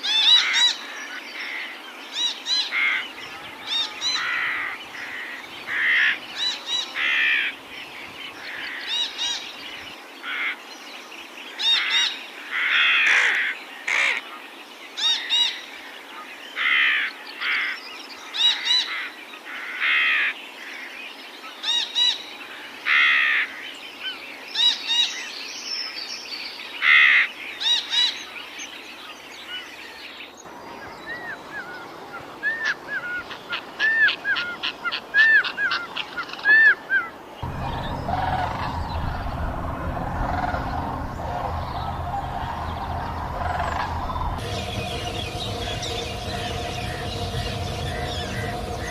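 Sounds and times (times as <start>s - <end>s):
harsh bird calls: 37.4s - 48.9s
steady low hum: 37.4s - 48.9s.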